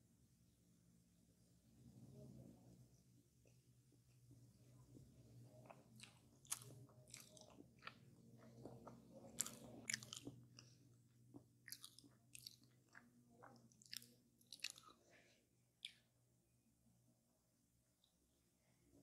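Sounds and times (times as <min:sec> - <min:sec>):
faint low hum: 0:00.0 - 0:19.0
crunchy chewing: 0:05.5 - 0:15.1.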